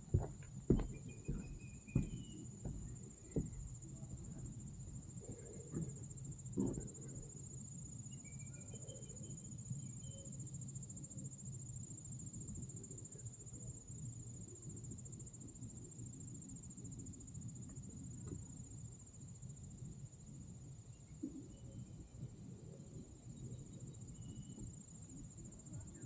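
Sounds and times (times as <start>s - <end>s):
crickets trilling: 0.0s - 26.0s
knocks: 0.1s - 4.3s, 6.6s - 7.2s.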